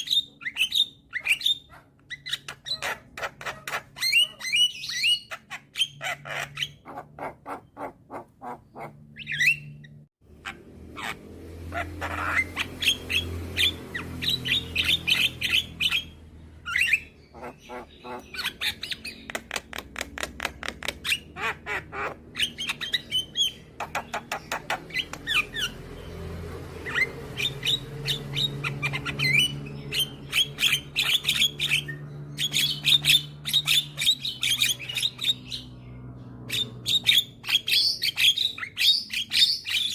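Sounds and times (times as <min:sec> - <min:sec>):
bird chattering and squawking: 0:00.0 - 0:26.1, 0:26.8 - 0:39.9.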